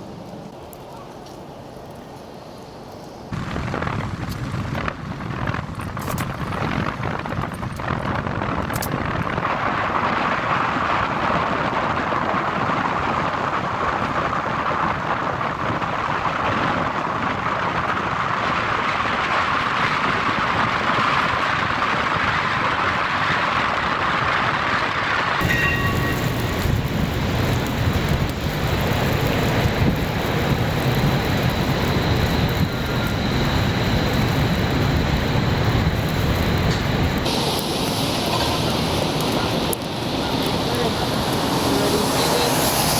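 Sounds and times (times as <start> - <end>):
deep rumbling traffic: 3.1 - 42.9
city street traffic: 25.4 - 42.9.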